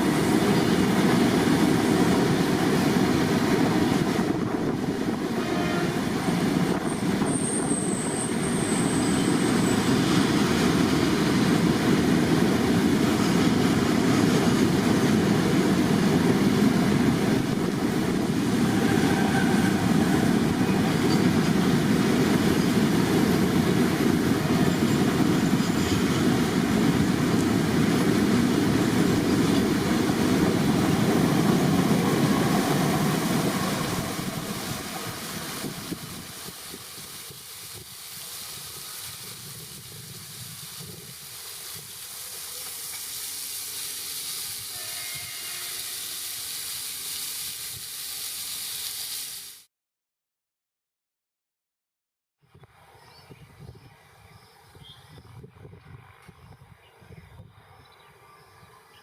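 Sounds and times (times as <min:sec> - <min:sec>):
train wheels rumbling on rail: 0:00.0 - 0:47.0
high wheel squeal: 0:06.8 - 0:10.1.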